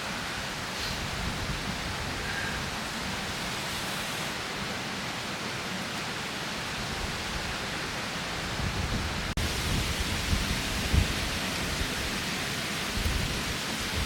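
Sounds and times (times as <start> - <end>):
gusts buffeting microphone: 0.4 - 4.0, 8.4 - 14.0
strong wind rushing: 8.5 - 14.0.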